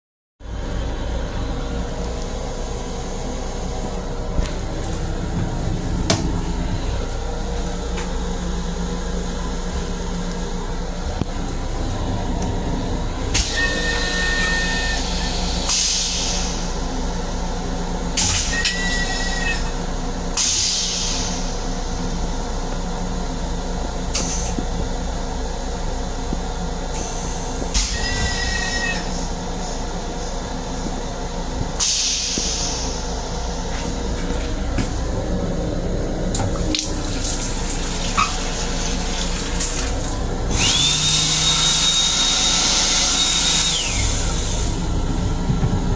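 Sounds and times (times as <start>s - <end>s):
railcar rumble and hum: 0.4s - 45.9s
brief high squeals: 27.0s - 29.2s.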